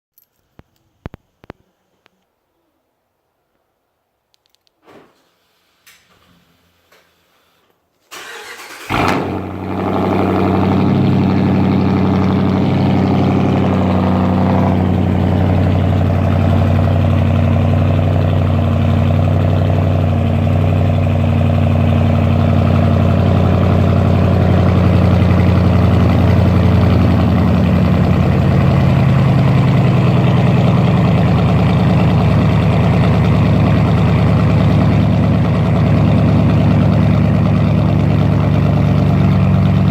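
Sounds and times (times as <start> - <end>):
car engine starting and idling: 8.1 - 39.9.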